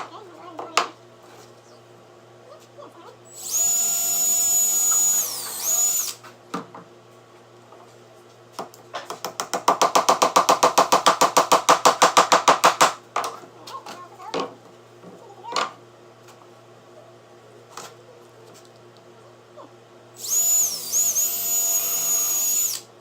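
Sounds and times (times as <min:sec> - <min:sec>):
cordless drill whining: 0:03.3 - 0:06.2, 0:20.2 - 0:22.9.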